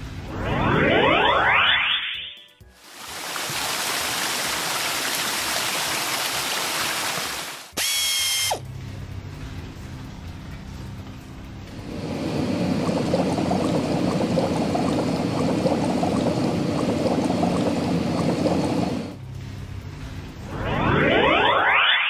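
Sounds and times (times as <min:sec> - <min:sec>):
quick rising sweep: 0:00.3 - 0:02.2, 0:20.4 - 0:22.0
cartoon water pouring and fizzing: 0:00.4 - 0:08.4, 0:11.8 - 0:19.2.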